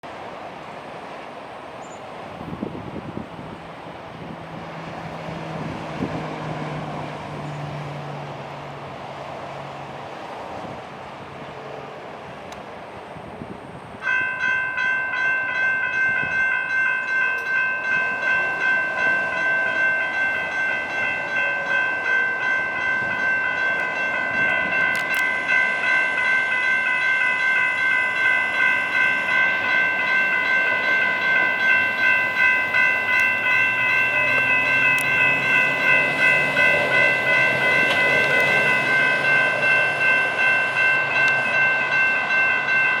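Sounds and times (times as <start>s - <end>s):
traffic noise: 0.0s - 43.0s
railroad crossing bells ringing: 13.6s - 43.0s.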